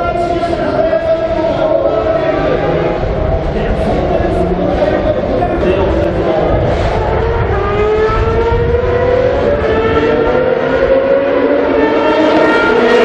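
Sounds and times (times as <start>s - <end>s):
race car engine at high revs: 0.0s - 13.0s.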